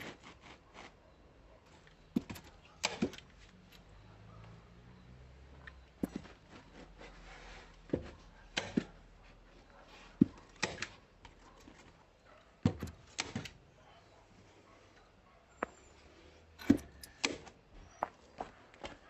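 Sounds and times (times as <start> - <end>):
hand tool knocks and thuds: 12.6 - 13.6.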